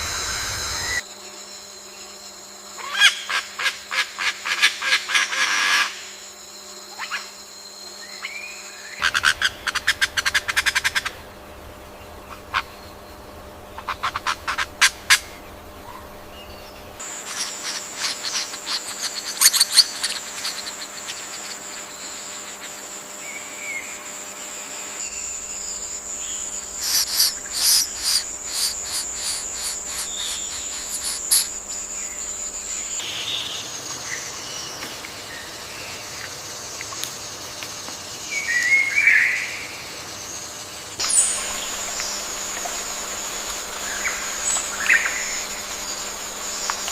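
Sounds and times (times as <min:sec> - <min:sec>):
high-pitched insect whine: 0:00.0 - 0:46.9
birds chirping and calling: 0:15.9 - 0:21.7, 0:25.2 - 0:33.0, 0:41.0 - 0:46.9.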